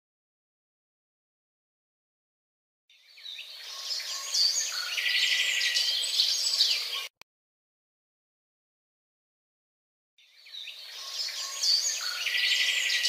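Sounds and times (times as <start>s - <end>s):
songbirds singing and chirping: 2.9s - 7.2s, 10.2s - 13.0s.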